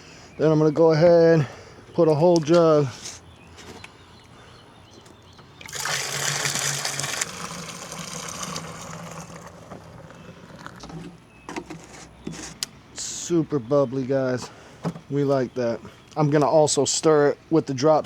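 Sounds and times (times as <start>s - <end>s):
liquid pouring into tank: 5.6s - 10.8s.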